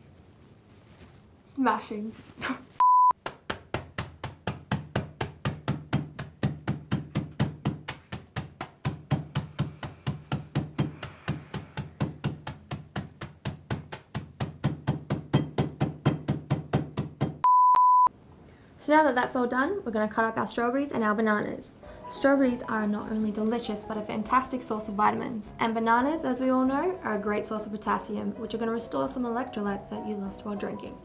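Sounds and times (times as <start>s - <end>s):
short electronic beep: 2.8s - 3.1s, 17.4s - 18.1s
rapid sharp knocks: 3.2s - 17.4s.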